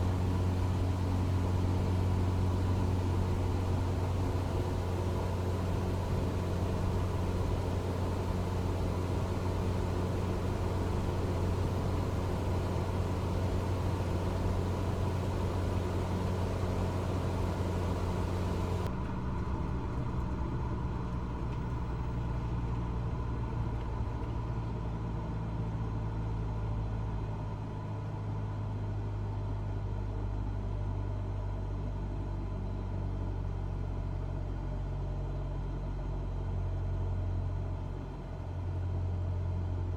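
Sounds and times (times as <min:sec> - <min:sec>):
airplane engine and propeller droning: 0:00.0 - 0:27.6.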